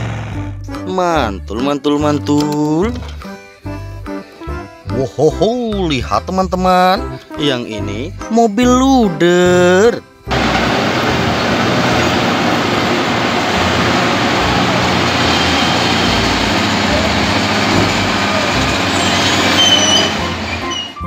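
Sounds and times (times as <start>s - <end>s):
wheel loader diesel engine running: 9.6s - 21.0s
short high squeals: 14.9s - 16.5s, 17.4s - 21.0s.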